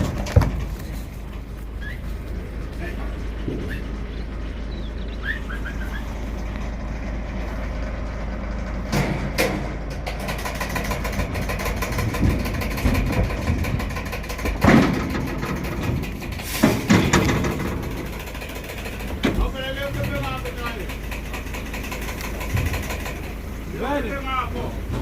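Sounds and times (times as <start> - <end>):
knocks and clatters: 0.0 - 1.8, 2.7 - 4.6, 8.3 - 23.7
truck engine idling: 0.0 - 25.0
bird chirps: 1.8 - 2.2, 3.6 - 6.5.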